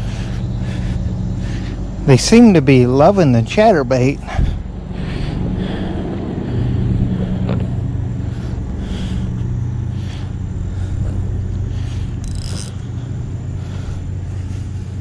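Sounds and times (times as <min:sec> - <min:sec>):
low engine hum: 0:00.0 - 0:15.0
light scraping: 0:12.2 - 0:12.8.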